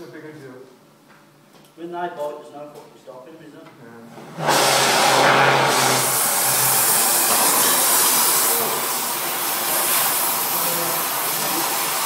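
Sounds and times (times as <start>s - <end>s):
hissing rush of gas jet: 4.3s - 12.0s.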